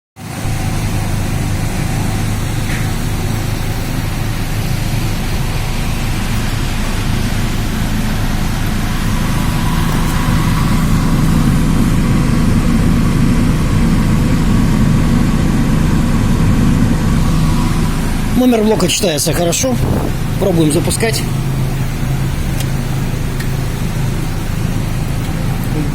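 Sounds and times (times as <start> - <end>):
low machine drone: 0.2 - 25.9.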